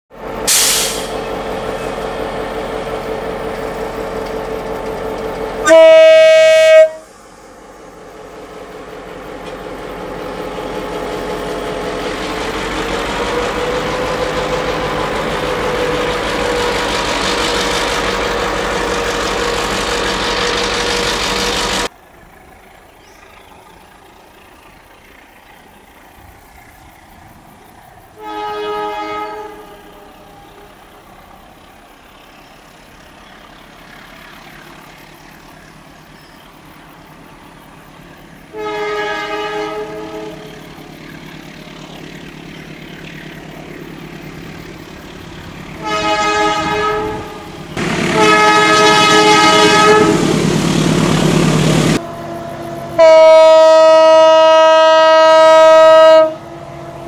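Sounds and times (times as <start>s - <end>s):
engine and train rumble: 0.1s - 57.0s
locomotive horn blast: 0.4s - 2.1s, 5.5s - 7.2s, 28.1s - 30.8s, 38.4s - 40.7s, 45.7s - 57.0s.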